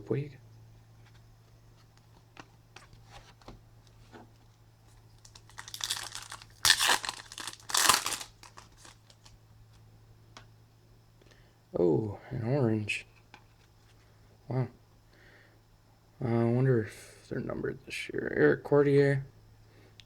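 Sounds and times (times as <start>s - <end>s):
loud wrapper rips: 5.2s - 9.3s
wrapper crinkling and tearing: 5.2s - 9.3s
cards clicking: 5.3s - 9.3s.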